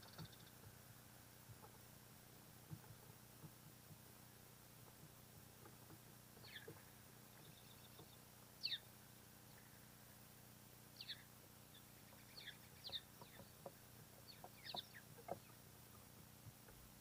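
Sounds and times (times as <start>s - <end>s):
small birds chirping: 0.0s - 0.8s, 4.8s - 10.3s, 10.9s - 17.0s.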